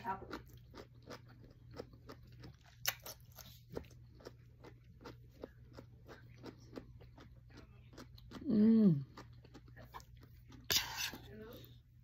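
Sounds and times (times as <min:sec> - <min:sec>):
person chewing food: 0:00.1 - 0:12.0.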